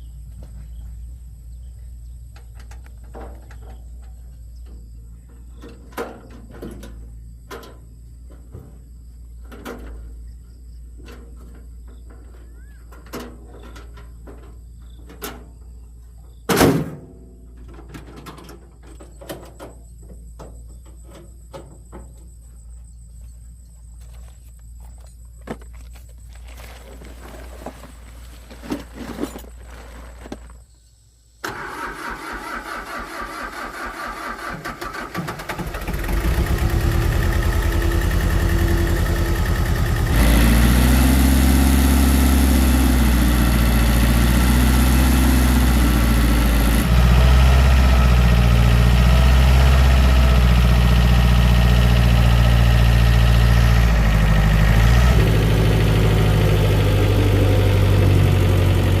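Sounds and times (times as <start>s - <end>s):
engine cranking and idling: 31.4s - 59.0s.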